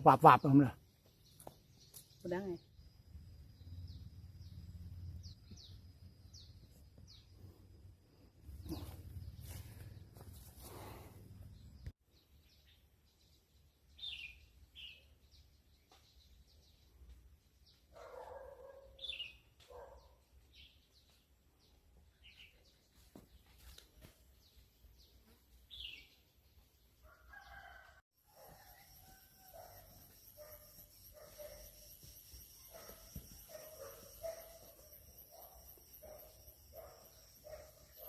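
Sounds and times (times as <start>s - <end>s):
birds chirping: 29.0s - 38.0s.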